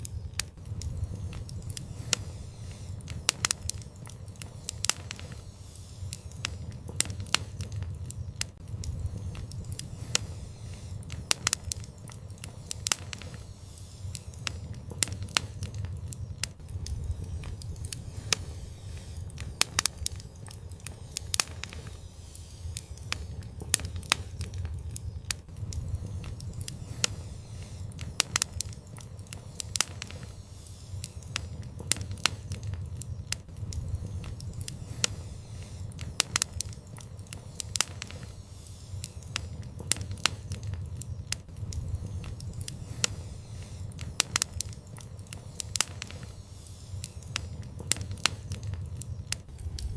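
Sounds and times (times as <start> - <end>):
low steady rumble: 0.0 - 46.4, 47.0 - 49.9
fire crackling and popping: 0.0 - 49.9.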